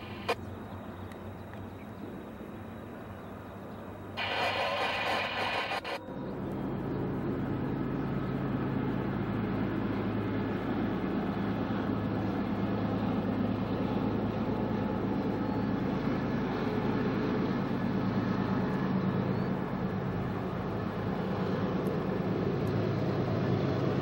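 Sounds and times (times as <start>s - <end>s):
diesel locomotives rumbling: 0.0s - 24.0s
loud hiss: 4.2s - 6.0s.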